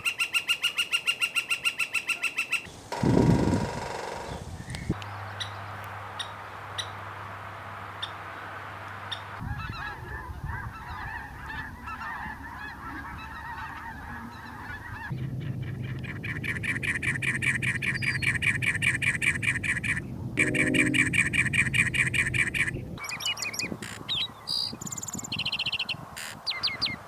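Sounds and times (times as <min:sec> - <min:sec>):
birds calling: 0:00.0 - 0:05.6
low hum: 0:20.4 - 0:23.0.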